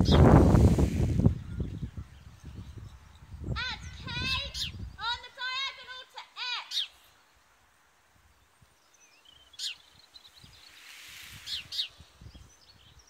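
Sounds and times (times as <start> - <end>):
faint hiss: 0.0 - 2.8, 6.1 - 13.0
bird calls sweeping down: 10.4 - 12.2.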